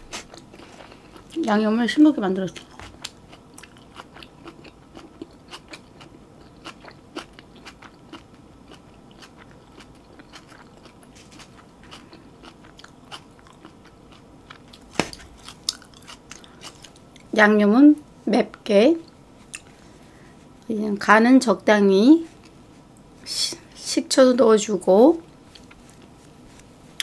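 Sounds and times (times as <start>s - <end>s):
person chewing with mouth clicks: 2.5s - 17.3s, 19.0s - 19.7s.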